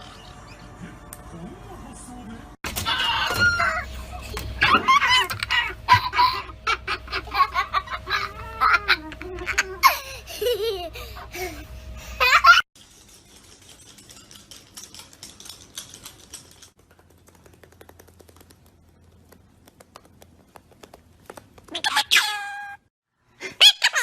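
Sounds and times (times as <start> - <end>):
parrot laugh-like calls: 2.9 - 9.0, 23.4 - 24.0
faint clicking and tapping: 12.8 - 21.8
parrot squawk: 21.7 - 22.8, 23.6 - 24.0.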